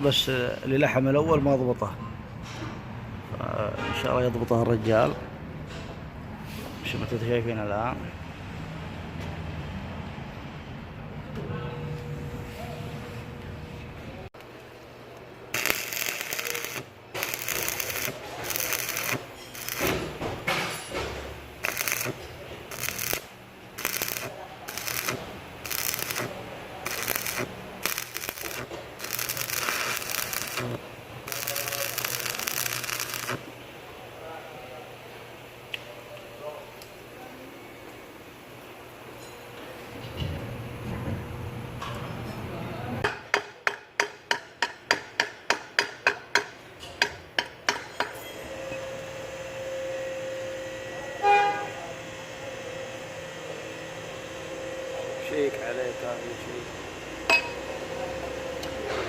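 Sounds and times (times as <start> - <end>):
steady hum: 11.5 - 35.7
arc welding crackling: 15.4 - 33.5
hammer striking metal: 43.0 - 48.3, 57.3 - 57.6.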